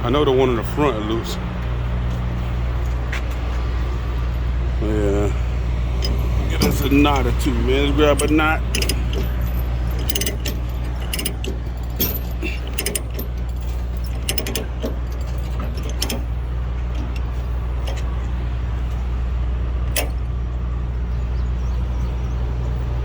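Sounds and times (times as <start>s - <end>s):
truck idling: 0.0s - 23.0s
metallic clicks of chain binder: 5.9s - 19.1s, 19.9s - 20.3s.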